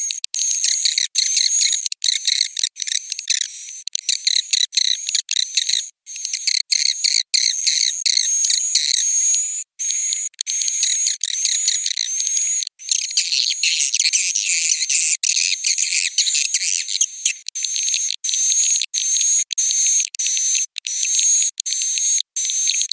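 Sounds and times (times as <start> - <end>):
high-pitched bird twittering: 5.0 - 22.9.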